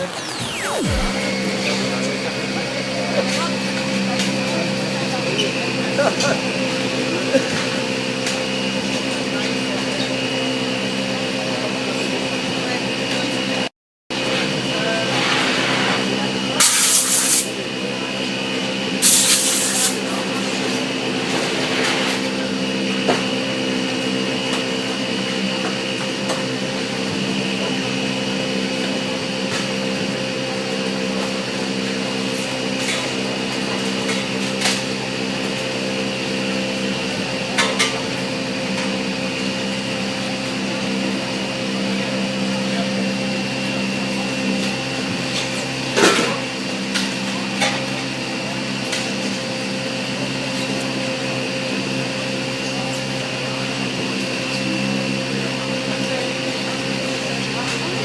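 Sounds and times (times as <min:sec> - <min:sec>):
machine motor humming: 0:00.0 - 0:13.2.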